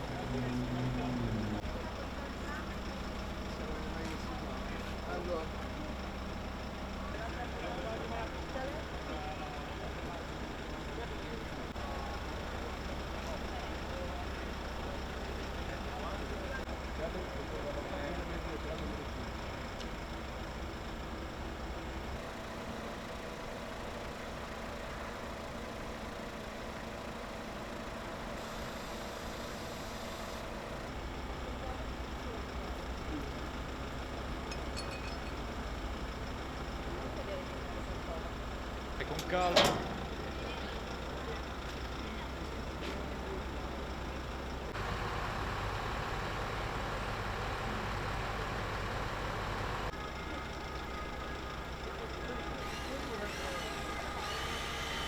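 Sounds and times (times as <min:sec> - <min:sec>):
vehicle engine idling: 0:00.0 - 0:55.0
faint steady tone: 0:28.1 - 0:52.6.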